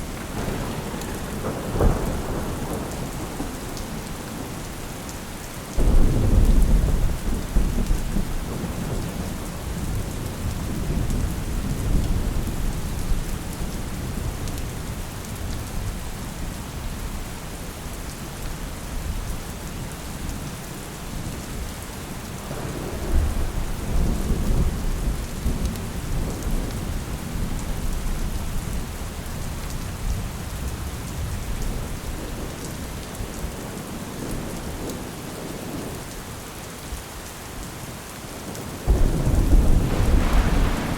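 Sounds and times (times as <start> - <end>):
steady rain: 0.0 - 40.9
rolling thunder: 0.1 - 4.5, 5.8 - 13.1, 38.9 - 40.9.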